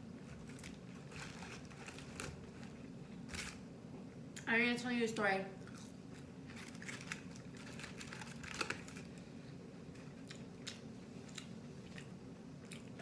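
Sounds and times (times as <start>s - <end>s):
chewing crunchy fried food: 5.6s - 13.0s.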